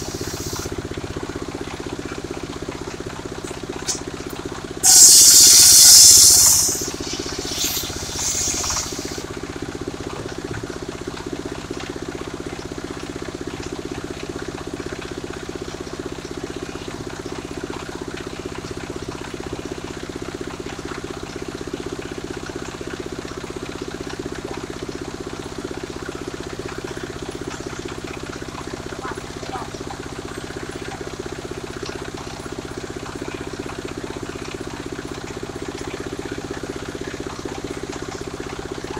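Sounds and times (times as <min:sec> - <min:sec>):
saw engine running: 0:00.0 - 0:01.2, 0:04.8 - 0:09.4
circular saw cutting wood: 0:04.8 - 0:09.3.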